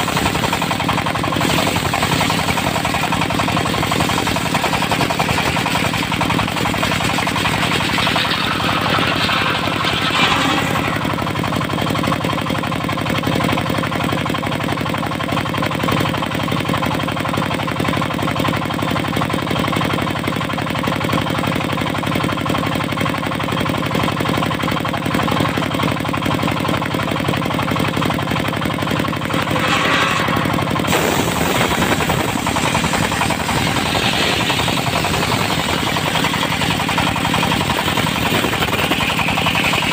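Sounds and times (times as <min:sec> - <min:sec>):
diesel engine knocking: 0:00.0 - 0:39.9
saw blade hiss: 0:29.4 - 0:39.9.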